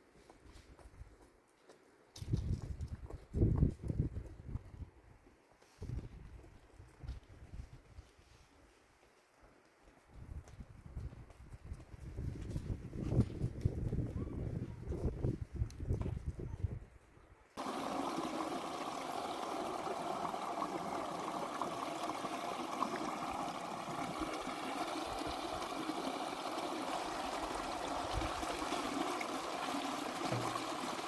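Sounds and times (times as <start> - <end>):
running water: 17.6 - 31.0.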